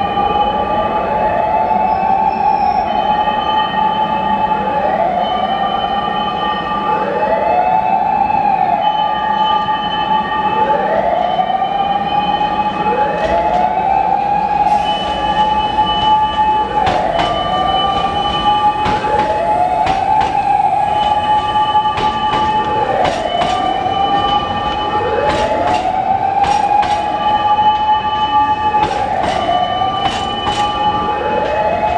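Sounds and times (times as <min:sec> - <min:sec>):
electric train squealing and whining: 0:11.9 - 0:31.9.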